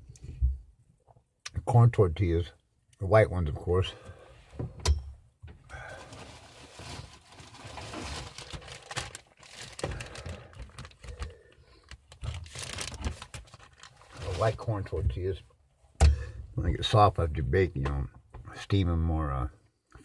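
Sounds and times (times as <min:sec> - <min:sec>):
packaging rustling and crinkling: 0:05.8 - 0:14.7.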